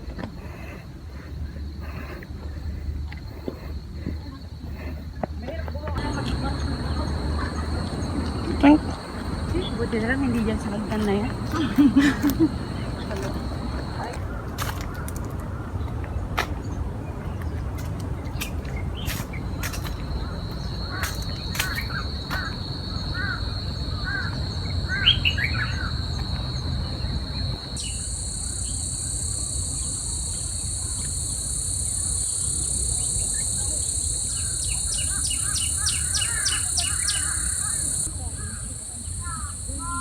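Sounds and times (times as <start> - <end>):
forest insects droning: 0.0 - 15.9, 16.8 - 40.0
birds chirping: 0.0 - 40.0
quick run of ticks: 17.3 - 23.3.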